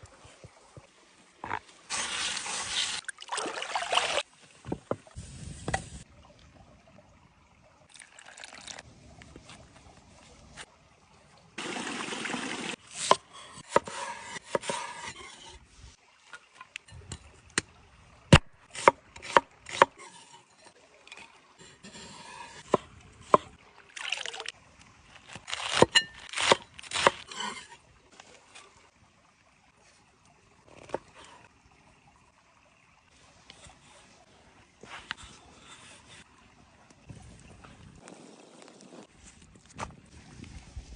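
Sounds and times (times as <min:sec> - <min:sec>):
liquid pouring: 0:01.9 - 0:04.3, 0:06.1 - 0:09.4, 0:11.6 - 0:12.8.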